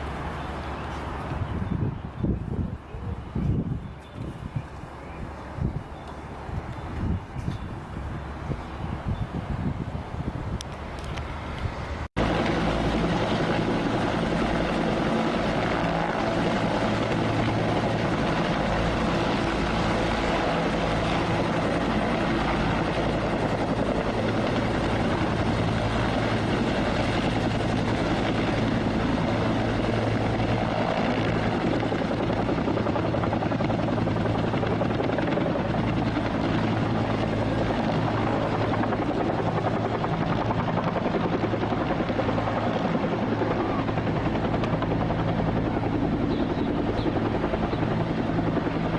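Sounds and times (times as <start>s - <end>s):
helicopter rotor chopping: 0.0s - 48.9s.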